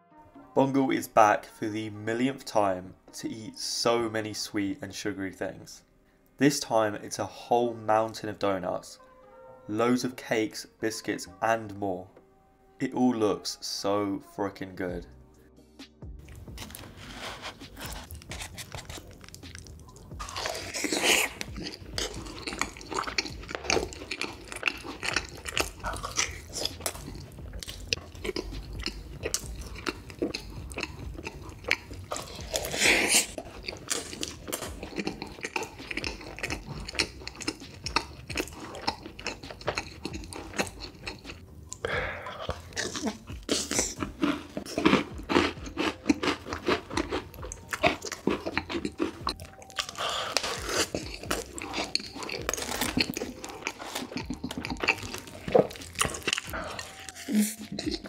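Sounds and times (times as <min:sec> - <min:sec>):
man chewing food: 0:16.1 - 0:58.0.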